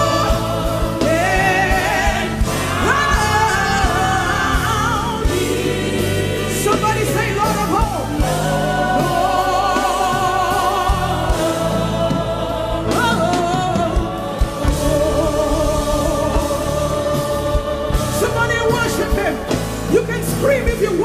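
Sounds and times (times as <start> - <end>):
gospel choir singing: 0.0 - 21.0.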